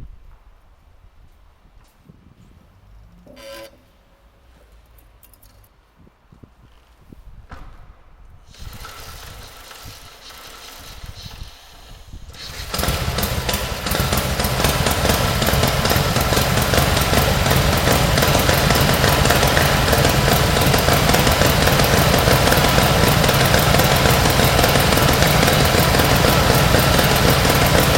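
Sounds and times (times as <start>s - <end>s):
quiet mechanical sounds: 0.1s - 13.5s
motorcycle engine running: 8.5s - 27.9s.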